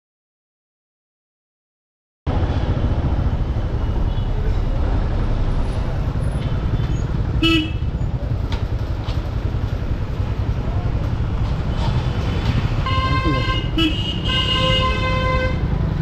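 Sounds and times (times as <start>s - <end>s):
road traffic rumble: 2.3s - 16.0s
vehicle horn honk: 7.4s - 7.8s, 12.8s - 15.7s.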